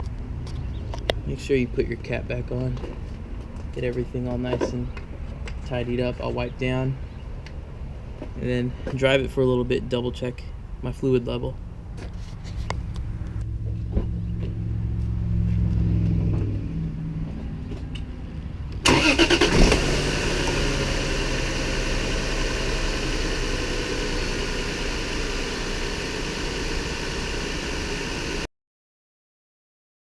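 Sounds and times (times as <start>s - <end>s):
car engine running: 13.0s - 17.9s, 18.8s - 28.5s.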